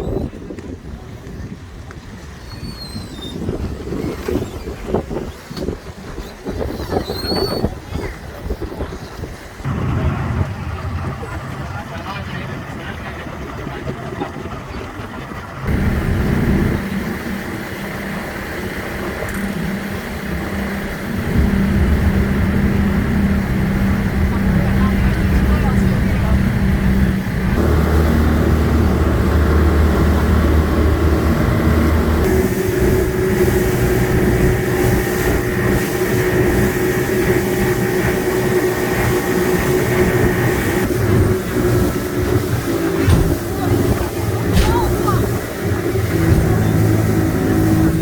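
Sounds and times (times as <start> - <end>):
engine running with low hum: 9.6 - 48.0.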